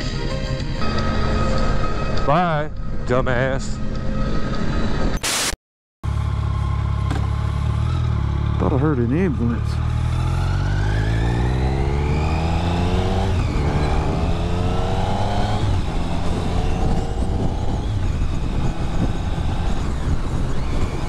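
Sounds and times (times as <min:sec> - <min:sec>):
motorcycle engine shifting gears: 0:06.1 - 0:21.0
wind on microphone: 0:15.6 - 0:21.0.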